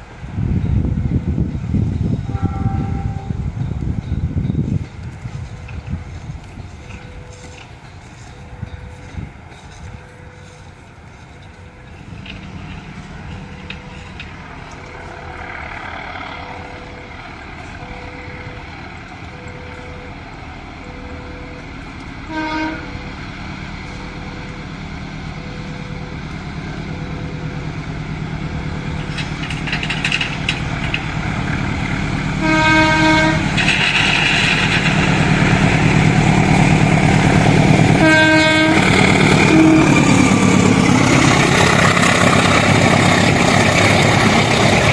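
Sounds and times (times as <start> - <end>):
diesel locomotive engine rumble: 0.0 - 44.9
crossing warning signal ringing: 2.0 - 21.6, 28.7 - 44.9
train horn blasts: 2.2 - 3.5, 22.2 - 23.1, 32.4 - 35.8, 37.8 - 40.3.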